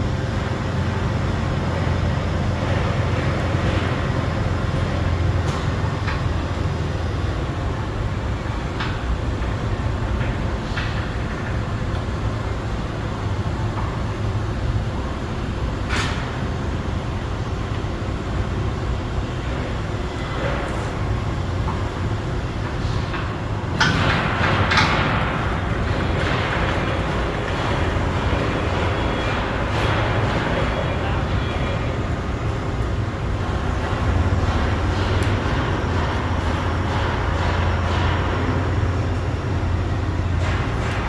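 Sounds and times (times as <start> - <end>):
low machine rumble: 16.7 - 41.0.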